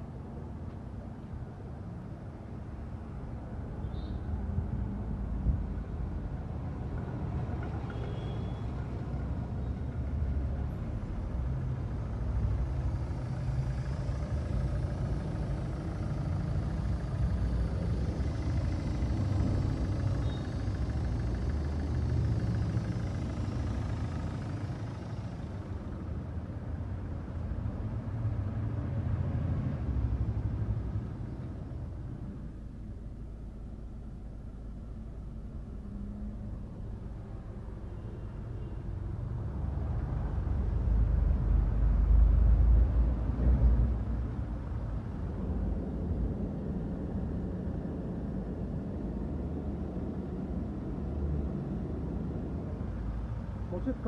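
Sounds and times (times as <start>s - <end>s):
car engine running: 11.3s - 27.6s.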